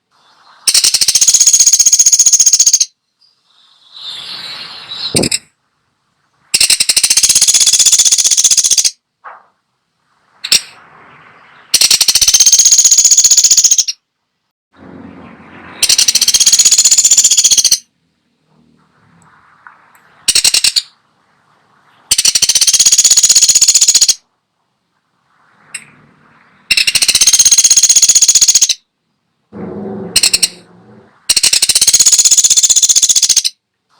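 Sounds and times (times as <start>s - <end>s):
woodpecker rattling call: 0.7s - 3.0s, 6.5s - 9.0s, 11.5s - 14.0s, 15.8s - 17.9s, 20.3s - 21.0s, 22.1s - 24.2s, 26.6s - 28.8s, 29.9s - 33.6s.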